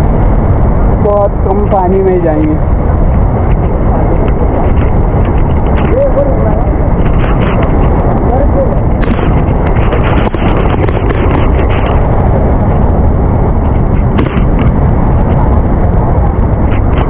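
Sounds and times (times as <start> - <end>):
strong stream current rushing: 0.0 - 17.0.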